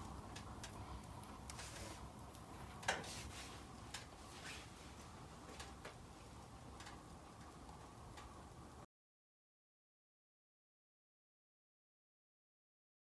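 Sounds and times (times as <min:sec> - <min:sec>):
firewood crackling: 0:00.0 - 0:08.8.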